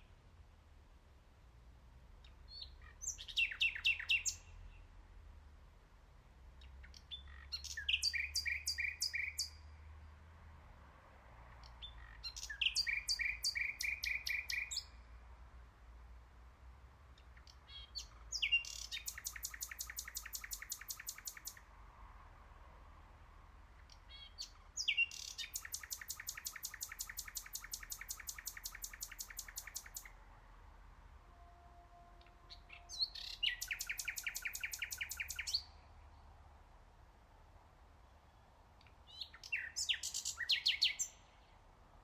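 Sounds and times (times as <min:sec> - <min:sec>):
nightingale singing: 0:02.2 - 0:04.9, 0:06.6 - 0:09.8, 0:11.6 - 0:15.1, 0:17.2 - 0:21.7, 0:23.8 - 0:30.2, 0:31.3 - 0:36.4, 0:38.2 - 0:41.6.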